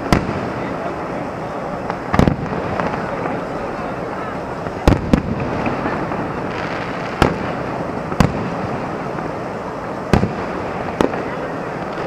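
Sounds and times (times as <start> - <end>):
steady background noise: 0.0 - 12.0
firework shells bursting: 1.8 - 3.8, 4.6 - 12.0.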